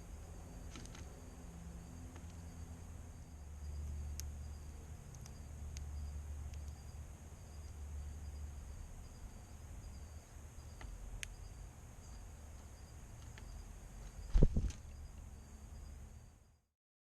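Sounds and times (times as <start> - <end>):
low outdoor rumble: 0.0 - 16.3
crickets chirping: 0.0 - 16.7
thin high hum: 14.0 - 15.7.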